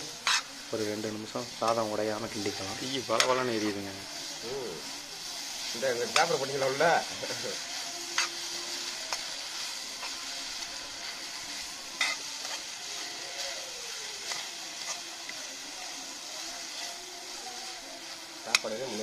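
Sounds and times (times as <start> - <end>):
rice sizzling in an iron pan: 0.0 - 19.0
metal ladle stirring: 8.1 - 13.0.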